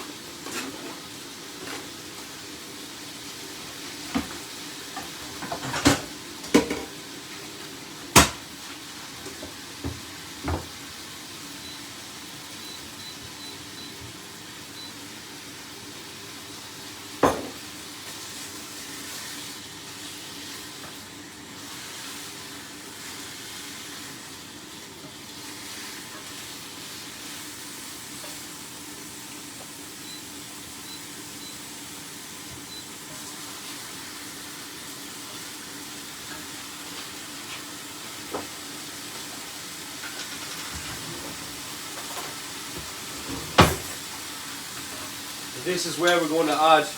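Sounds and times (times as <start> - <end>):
chicken sizzling in a pan: 0.0 - 46.9
kitchenware knocking: 17.2 - 17.6.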